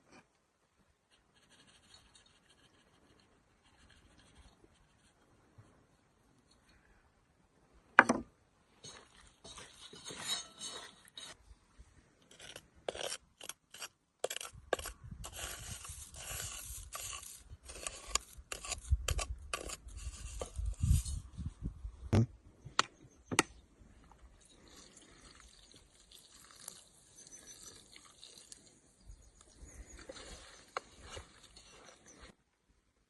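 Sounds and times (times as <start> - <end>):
hand scraping and rubbing: 12.3 - 21.6.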